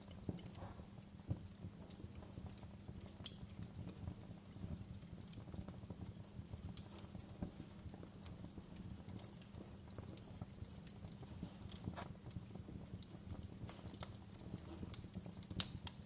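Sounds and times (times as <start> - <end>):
low steady fire rumble: 0.0 - 16.0
wood fire crackling: 0.0 - 16.0.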